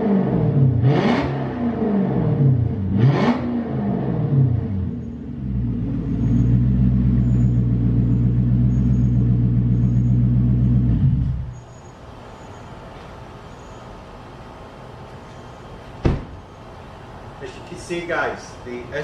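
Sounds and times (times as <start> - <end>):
car engine running: 2.0 - 11.6.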